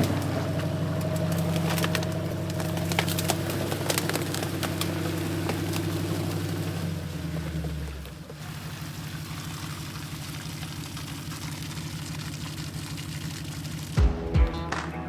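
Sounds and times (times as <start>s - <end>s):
truck engine running: 0.0s - 15.0s
music with heavy bass thumps: 14.0s - 15.0s.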